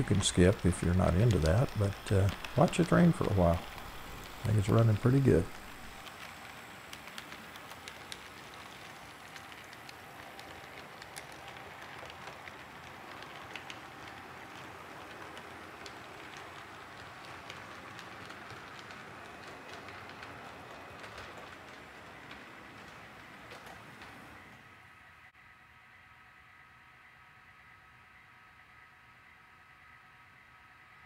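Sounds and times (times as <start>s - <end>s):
faint clicks: 0.0s - 24.3s
model train wheels rattling on rails: 0.0s - 24.6s.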